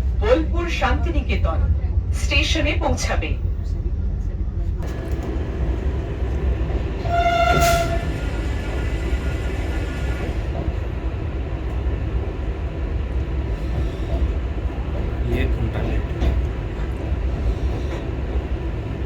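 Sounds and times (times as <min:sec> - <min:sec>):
train rumbling: 0:00.0 - 0:19.0
train horn: 0:07.0 - 0:08.5.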